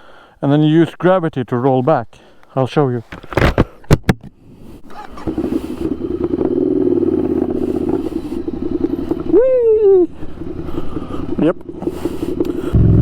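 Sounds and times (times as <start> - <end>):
motorcycle engine running: 4.9 - 13.0.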